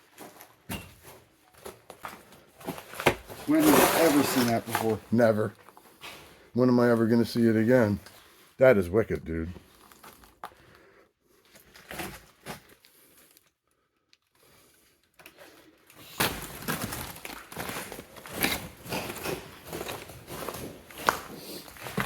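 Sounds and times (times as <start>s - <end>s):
clothing and gear rustling: 0.0s - 6.5s
footsteps crunching on loose rock: 16.4s - 22.0s.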